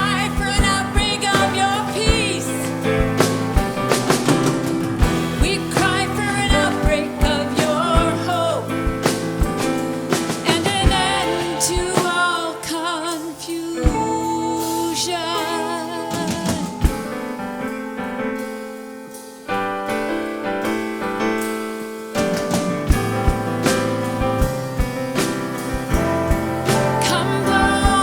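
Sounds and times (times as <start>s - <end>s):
person singing with vibrato: 0.0s - 3.2s, 5.1s - 17.4s, 26.1s - 28.0s
drum kit hits: 0.0s - 28.0s
keyboard chords: 0.0s - 28.0s.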